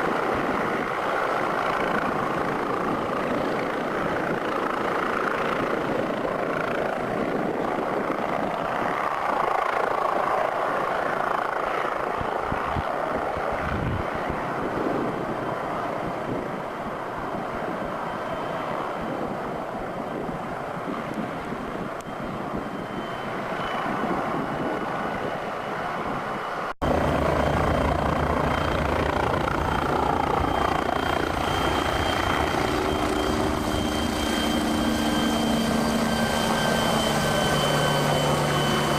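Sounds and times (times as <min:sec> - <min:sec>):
helicopter rotor and turbine: 0:00.0 - 0:38.9
faint high whine: 0:26.9 - 0:38.9.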